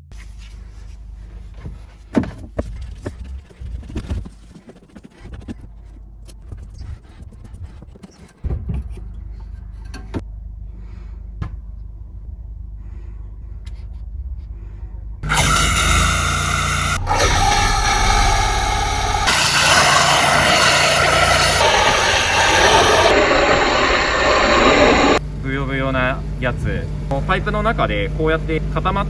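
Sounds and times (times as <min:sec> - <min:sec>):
drain-cleaning machine humming: 0:15.2 - 0:29.0.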